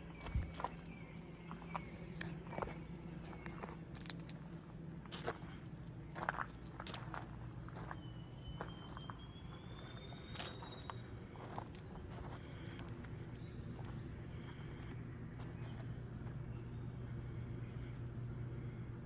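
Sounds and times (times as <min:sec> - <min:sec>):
high-pitched insect drone: 0:00.0 - 0:19.0
low steady hum: 0:00.0 - 0:19.0
light footsteps: 0:06.2 - 0:16.4.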